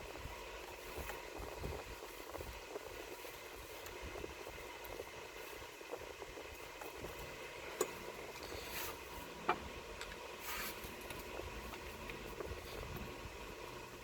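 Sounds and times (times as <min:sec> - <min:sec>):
scraping rustles: 0:06.6 - 0:09.4, 0:10.4 - 0:13.2.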